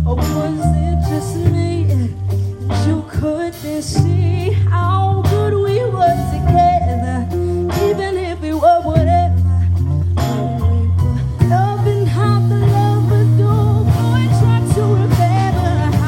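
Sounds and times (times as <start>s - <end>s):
person singing: 0.0s - 9.8s, 10.6s - 16.0s
deep bass line: 0.0s - 16.0s.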